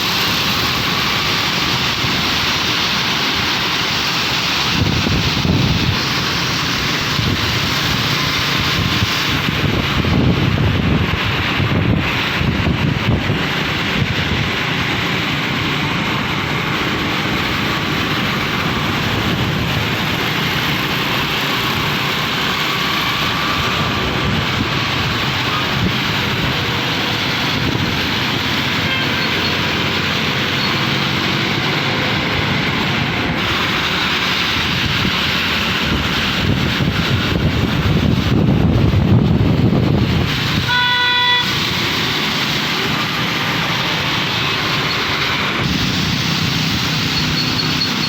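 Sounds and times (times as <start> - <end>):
tyres hissing on wet road: 0.0 - 48.0
short car horn beep: 40.7 - 41.5.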